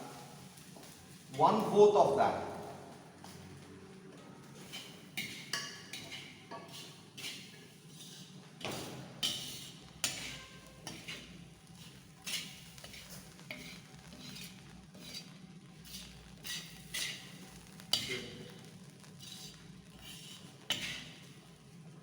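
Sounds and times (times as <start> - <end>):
metal ladle scraping a pan: 4.4 - 21.6.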